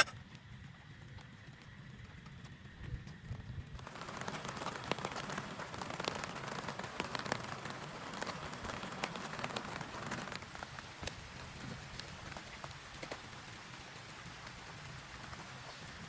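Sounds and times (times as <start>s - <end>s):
heavy rain on a tent: 3.8s - 16.0s.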